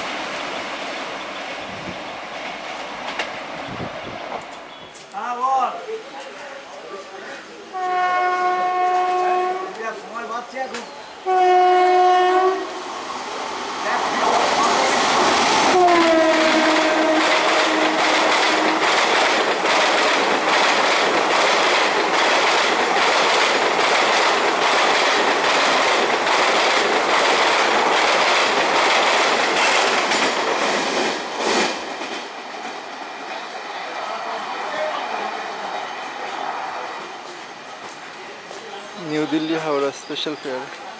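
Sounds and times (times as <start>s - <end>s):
train horn blast: 7.7s - 9.8s, 11.2s - 12.8s, 15.7s - 19.0s
train wheels clattering over rail joints: 14.4s - 33.5s.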